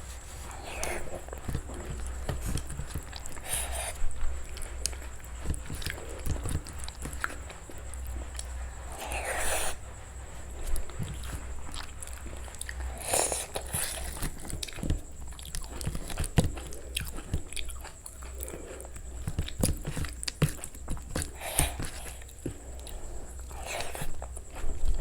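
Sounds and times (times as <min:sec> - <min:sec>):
food crunching: 0:00.0 - 0:25.0
person chewing food: 0:00.0 - 0:25.0.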